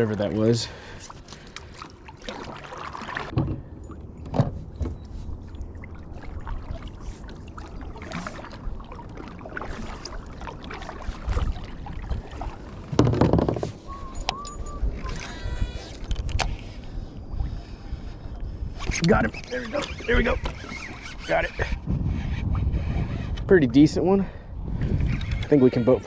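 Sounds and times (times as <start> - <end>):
knocks and splashes on kayak hull: 1.3 - 5.2, 7.6 - 13.8.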